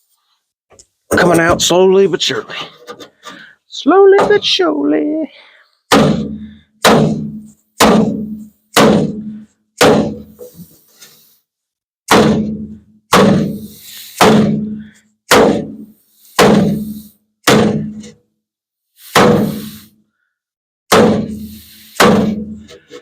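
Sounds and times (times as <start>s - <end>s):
hammer blows on sheet metal: 5.9s - 10.6s, 12.1s - 18.1s, 19.1s - 19.9s, 20.9s - 22.8s.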